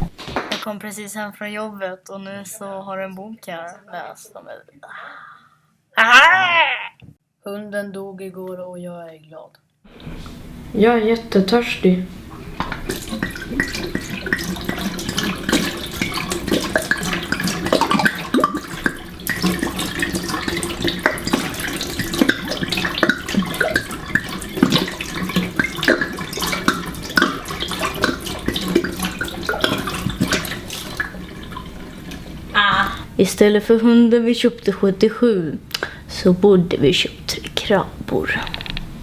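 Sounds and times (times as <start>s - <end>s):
tap water running into sink: 12.3s - 32.6s.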